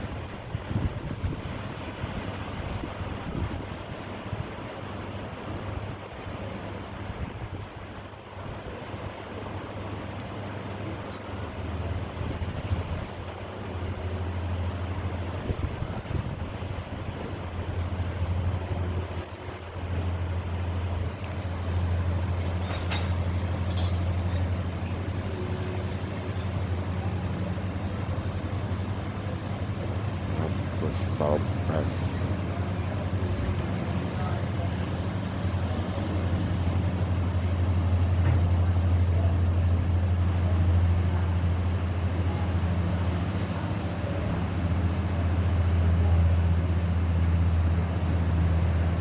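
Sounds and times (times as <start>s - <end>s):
wind and sea noise: 0.0s - 49.0s
aircraft engines droning: 13.2s - 49.0s.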